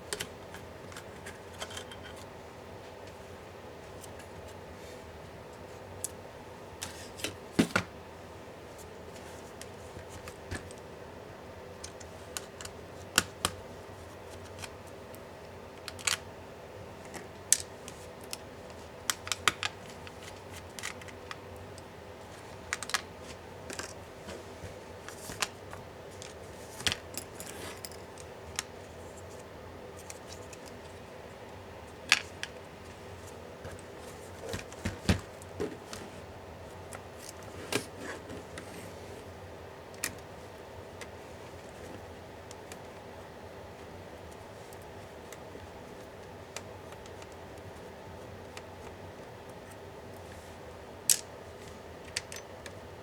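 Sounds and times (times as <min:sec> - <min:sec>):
faint steady hum: 0:00.0 - 0:53.0
clicks and taps of tools and parts: 0:52.0 - 0:52.8.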